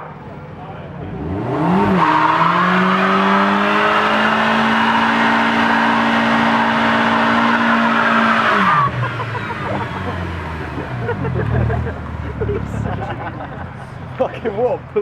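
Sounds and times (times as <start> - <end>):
car engine revving high: 0.0 - 13.2.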